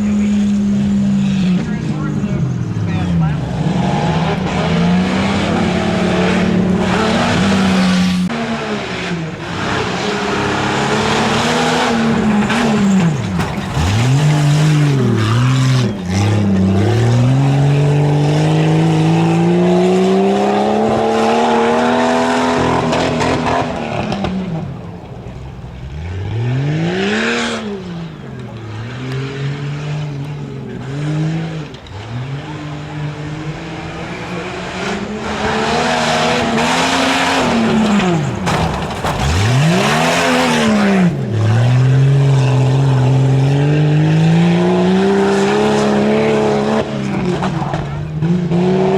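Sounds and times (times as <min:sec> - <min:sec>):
truck engine revving: 0:00.0 - 0:48.9.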